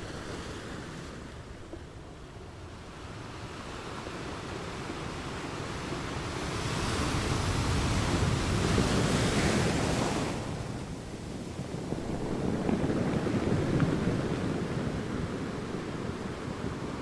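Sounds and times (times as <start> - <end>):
low rumble of surf: 0.0 - 17.0
ocean waves breaking on sand: 0.0 - 17.0.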